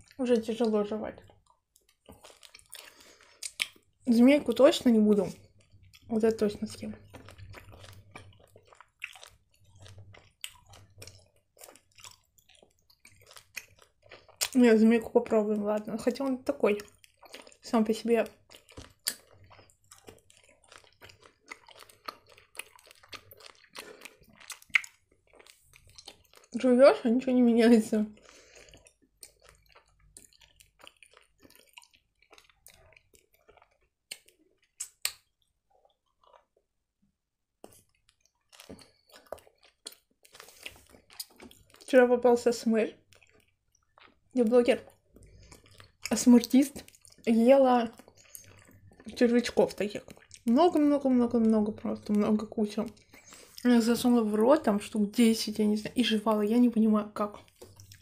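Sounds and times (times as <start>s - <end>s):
chewing soft gummy candy: 0.0s - 36.8s, 37.6s - 58.0s
mouth clicks: 23.8s - 26.1s, 34.1s - 35.3s.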